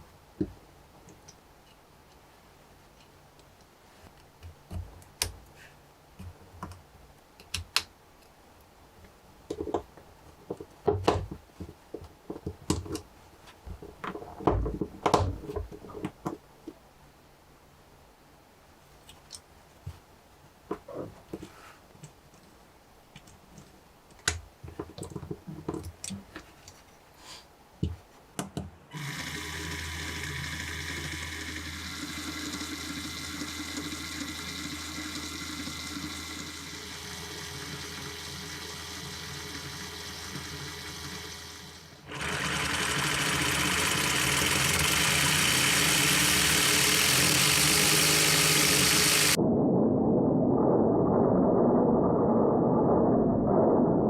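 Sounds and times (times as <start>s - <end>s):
motor whirring: 28.9s - 49.4s.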